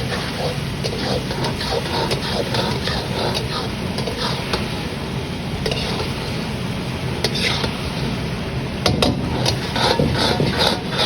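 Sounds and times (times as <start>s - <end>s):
utensils clicking and scraping: 0.0s - 4.6s, 9.4s - 11.0s
steady kitchen hum: 0.0s - 11.0s.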